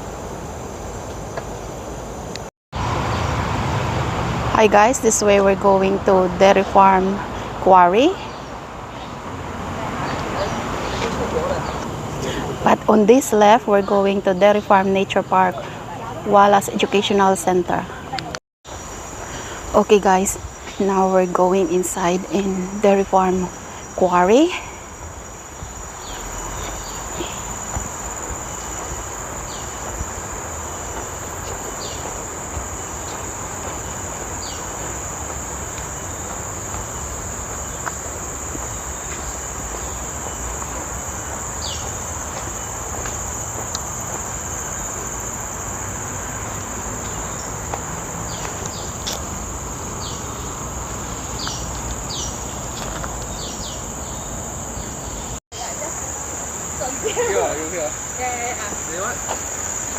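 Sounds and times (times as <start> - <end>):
insect chirps: 0.0 - 3.8, 4.5 - 59.9
high-pitched insect drone: 18.7 - 59.9.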